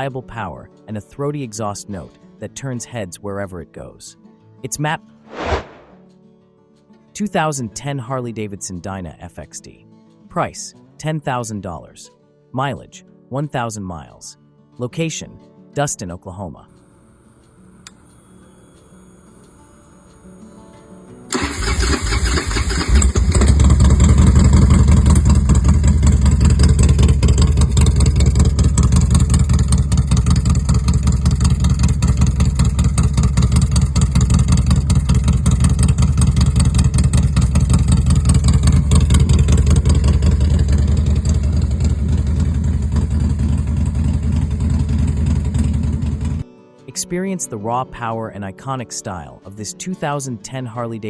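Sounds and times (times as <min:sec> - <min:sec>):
motorcycle engine starting and idling: 0:21.3 - 0:46.4.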